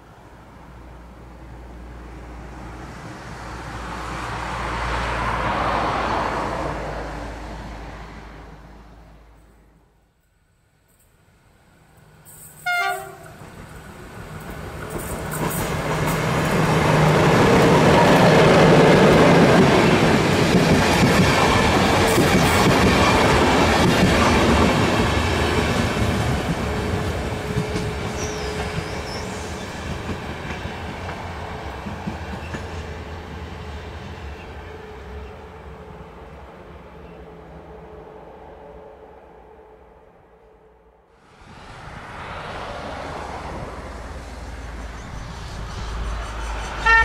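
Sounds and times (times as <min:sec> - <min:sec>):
train horn blast: 0:12.6 - 0:13.4, 0:46.8 - 0:47.0.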